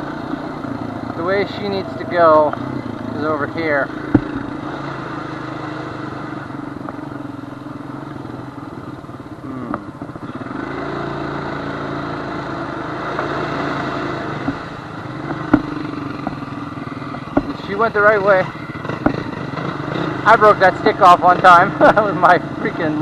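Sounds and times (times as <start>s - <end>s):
quad engine revving: 0.0s - 6.6s, 9.4s - 23.0s
sharp knocks: 4.0s - 4.6s, 14.4s - 14.7s, 15.3s - 16.4s, 17.2s - 17.6s, 18.9s - 19.3s.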